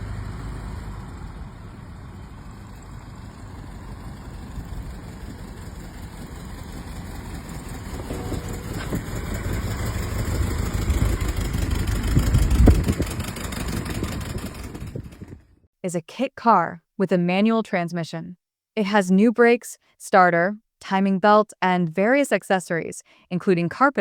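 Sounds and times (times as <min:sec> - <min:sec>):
car engine running: 0:00.0 - 0:15.6.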